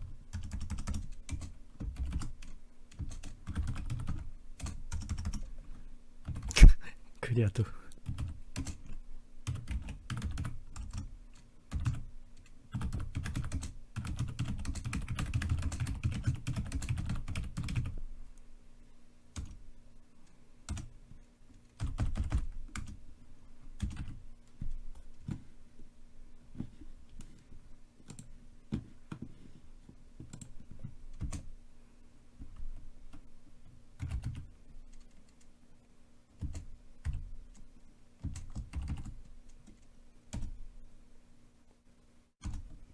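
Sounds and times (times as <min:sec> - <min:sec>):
typing on computer keyboard: 0:00.3 - 0:05.5, 0:06.2 - 0:06.5, 0:08.0 - 0:18.0, 0:19.4 - 0:19.6, 0:20.7 - 0:20.9, 0:21.7 - 0:23.0, 0:23.8 - 0:25.4, 0:30.2 - 0:31.5, 0:34.0 - 0:35.5, 0:36.4 - 0:40.6, 0:42.4 - 0:42.8.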